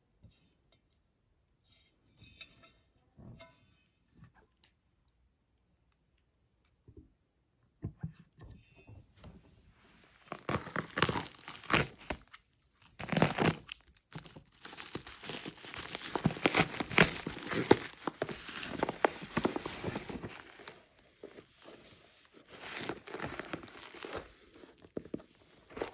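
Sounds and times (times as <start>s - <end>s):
wrapping crinkling and tearing: 10.1s - 25.9s.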